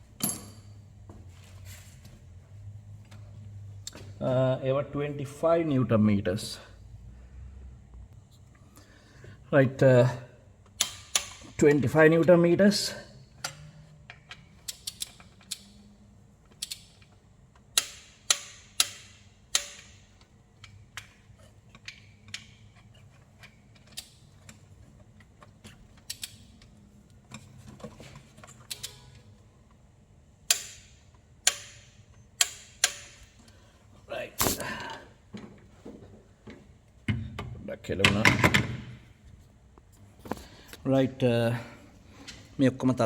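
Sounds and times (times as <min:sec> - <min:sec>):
ratchet clicks on bolts: 0:10.7 - 0:11.6, 0:13.4 - 0:15.8, 0:16.5 - 0:22.7, 0:30.5 - 0:33.4.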